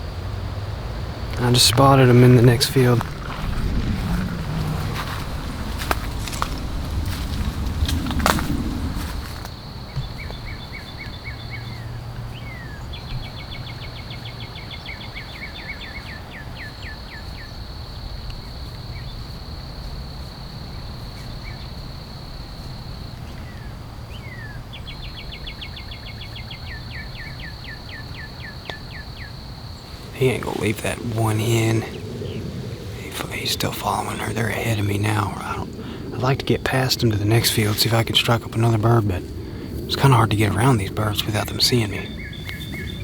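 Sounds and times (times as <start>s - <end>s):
low steady rumble: 0.0s - 9.5s
small bird singing: 39.9s - 43.0s.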